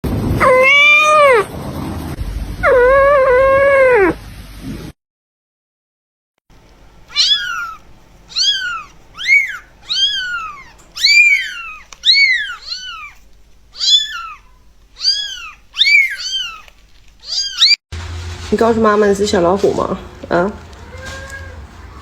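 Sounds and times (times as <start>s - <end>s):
cat meowing: 0.4s - 1.5s, 2.6s - 4.2s, 7.1s - 17.8s, 20.6s - 22.0s.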